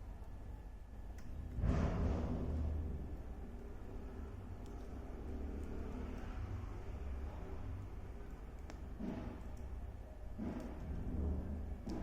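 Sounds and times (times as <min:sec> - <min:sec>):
wood fire burning: 0:00.0 - 0:12.0.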